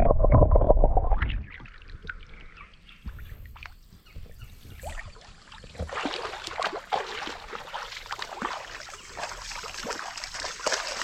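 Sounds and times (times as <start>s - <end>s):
footsteps splashing through water: 3.1s - 11.0s.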